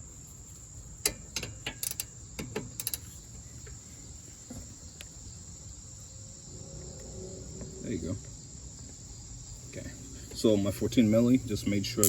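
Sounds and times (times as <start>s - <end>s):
crickets chirring: 0.0s - 12.0s
socket wrench clicking: 1.1s - 3.1s.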